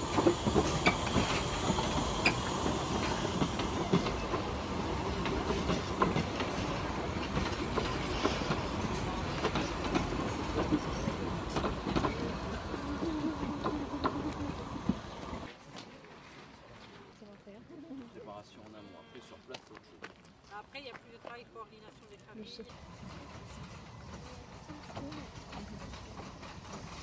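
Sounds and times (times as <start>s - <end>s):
train carriages rumbling: 0.0s - 15.5s, 22.7s - 27.0s
wheels clattering over rails: 0.0s - 15.5s, 22.7s - 27.0s.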